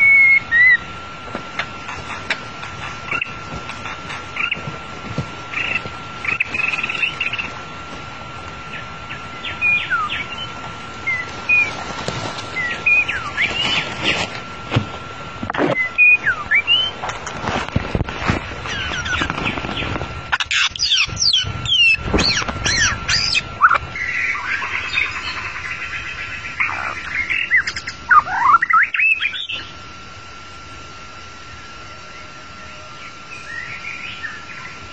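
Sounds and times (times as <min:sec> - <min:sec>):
bird singing whistled notes: 0:00.0 - 0:00.9, 0:08.7 - 0:11.7, 0:15.8 - 0:16.9, 0:20.5 - 0:29.7, 0:31.5 - 0:34.8.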